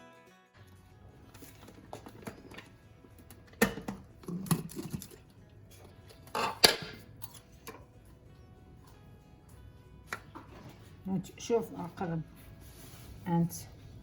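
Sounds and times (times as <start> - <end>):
bowls and utensils clattering: 1.2 - 11.0.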